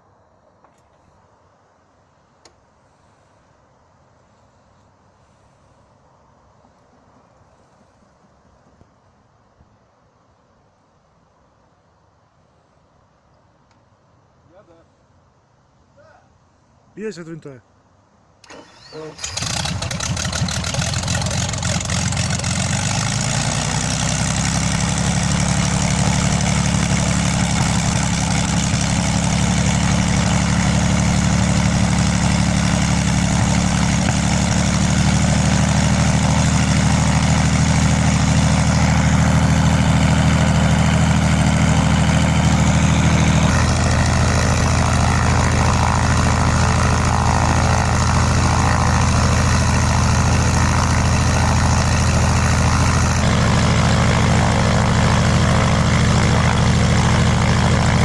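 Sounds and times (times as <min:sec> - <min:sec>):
aircraft engine running: 0:18.4 - 0:58.0.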